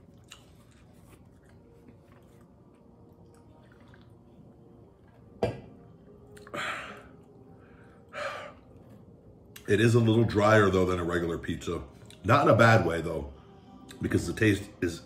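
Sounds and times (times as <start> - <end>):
quiet chewing: 0.0 - 5.4, 6.0 - 7.5, 8.5 - 9.7, 12.0 - 12.3.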